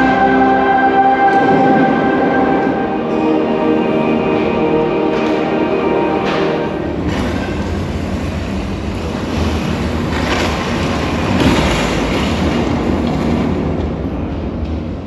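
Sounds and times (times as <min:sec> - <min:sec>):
loud rumbling wash of noise: 0:00.0 - 0:15.0.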